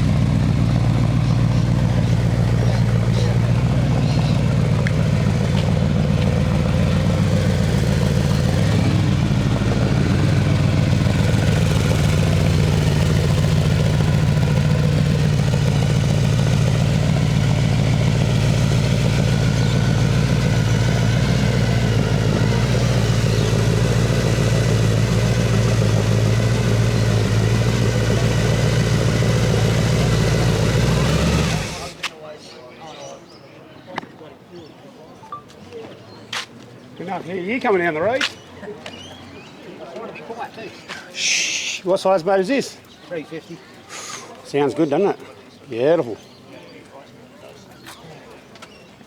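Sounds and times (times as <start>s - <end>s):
car engine idling: 0.0s - 32.1s.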